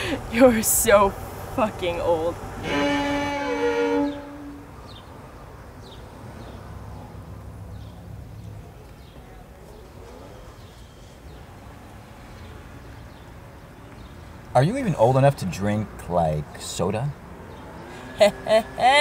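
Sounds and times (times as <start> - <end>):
held musical note: 2.6 - 4.7.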